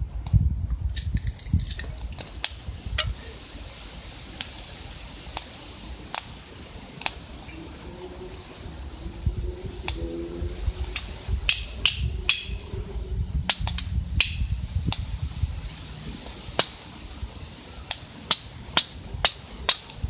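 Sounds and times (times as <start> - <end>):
wood fire crackling and popping: 0.2 - 7.6, 10.9 - 12.7, 13.4 - 20.0
low rumble: 7.6 - 16.5.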